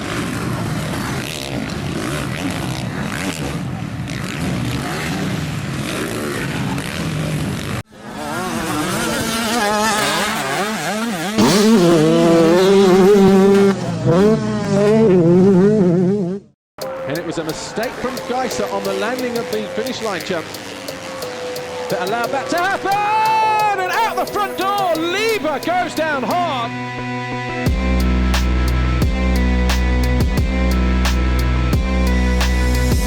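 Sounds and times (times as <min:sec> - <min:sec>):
dirt bike engines revving: 0:00.0 - 0:33.0.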